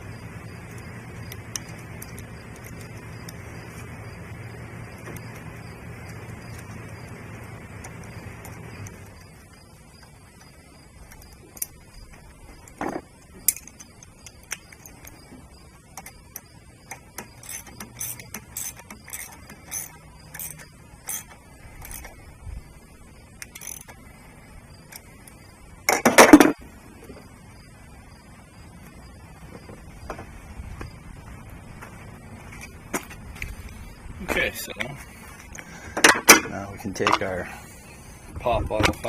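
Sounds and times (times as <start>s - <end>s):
hand tools clicking and knocking: 10.0s - 22.2s, 35.5s - 37.4s
tool clatter: 17.2s - 22.1s.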